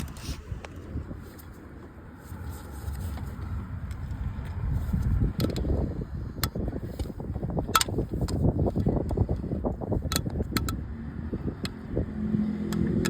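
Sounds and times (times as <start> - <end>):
low uneven rumble: 0.0 - 13.0.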